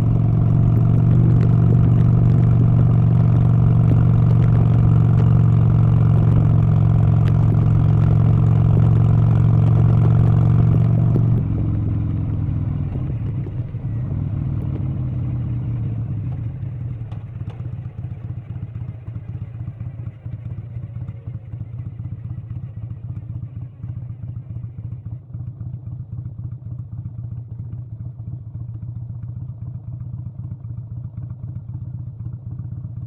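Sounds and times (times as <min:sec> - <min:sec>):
engine running loudly: 0:00.0 - 0:17.7.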